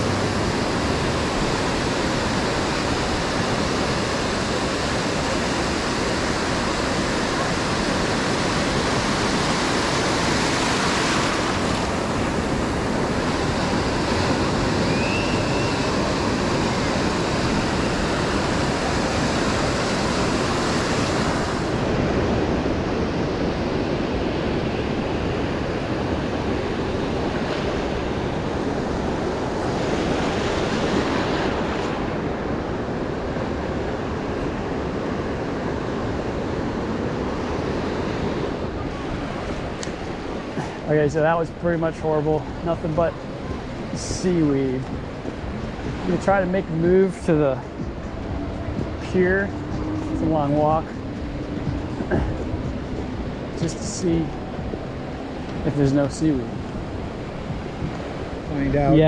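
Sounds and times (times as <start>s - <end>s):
surf breaking on beach: 0.0s - 59.0s
wind on microphone: 41.6s - 59.0s.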